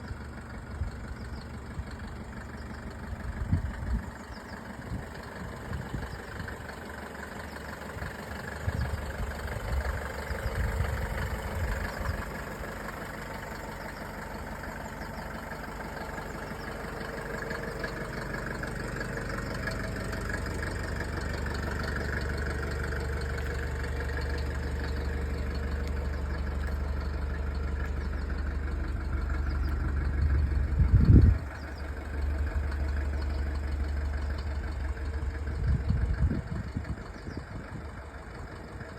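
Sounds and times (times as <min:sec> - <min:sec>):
diesel engine idling: 0:00.0 - 0:38.9
irregular low thumps: 0:30.2 - 0:31.5.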